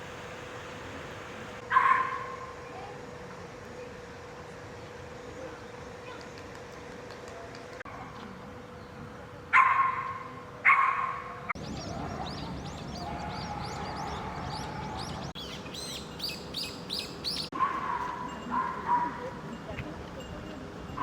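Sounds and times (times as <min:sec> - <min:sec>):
dog barking: 0:01.7 - 0:02.4, 0:09.6 - 0:11.4, 0:17.6 - 0:19.2
bird chirps: 0:11.6 - 0:17.5.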